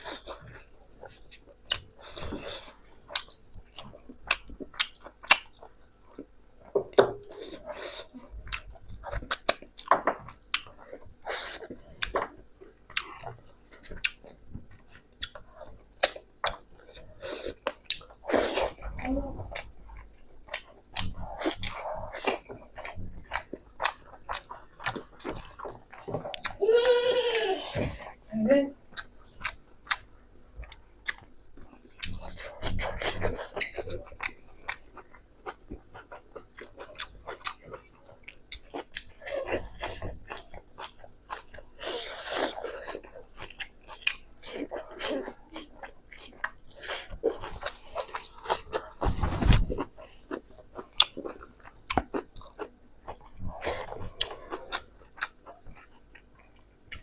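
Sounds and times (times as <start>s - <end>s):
person chewing crunchy food: 0.0s - 28.3s, 28.9s - 57.0s
wet chewing mouth clicks: 13.0s - 26.6s.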